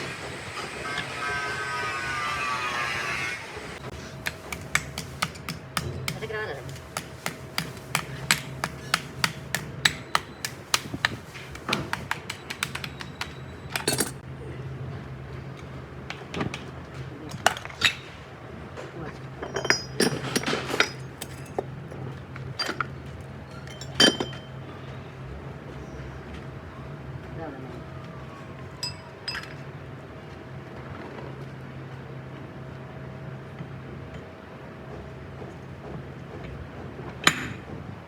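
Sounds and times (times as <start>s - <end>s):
steady low hum: 3.5s - 15.5s
hammer tapping on metal: 3.9s - 14.1s.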